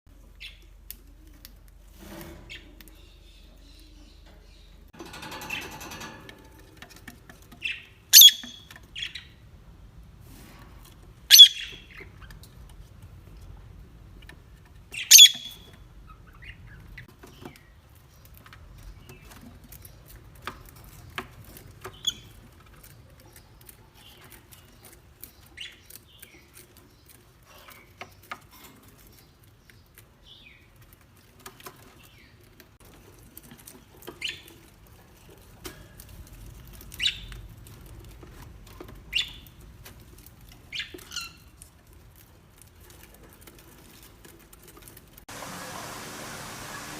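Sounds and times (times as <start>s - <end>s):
parrot squawking: 8.1s - 8.6s, 11.3s - 11.7s, 15.1s - 15.5s
rustle: 10.0s - 15.8s, 17.0s - 46.9s.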